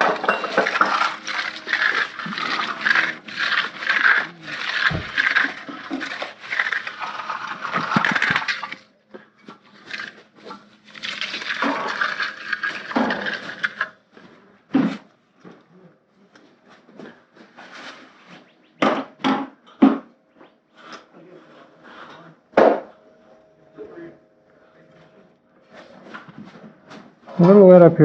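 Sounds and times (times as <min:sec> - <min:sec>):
broom scraping fresh concrete: 0:00.0 - 0:08.8.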